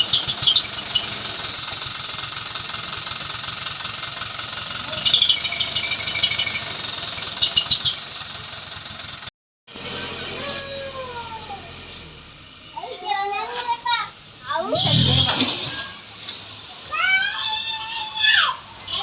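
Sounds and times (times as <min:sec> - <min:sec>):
high chirping bursts: 0:00.0 - 0:01.4, 0:04.8 - 0:08.3
truck engine running: 0:00.0 - 0:19.0.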